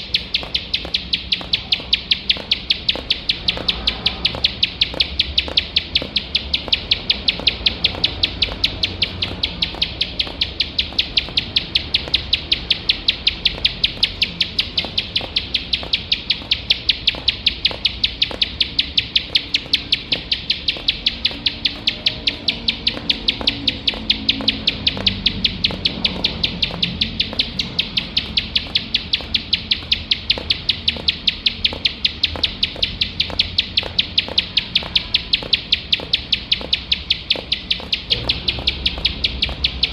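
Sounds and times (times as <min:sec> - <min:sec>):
bird calling rapid high notes: 0:00.0 - 0:39.9.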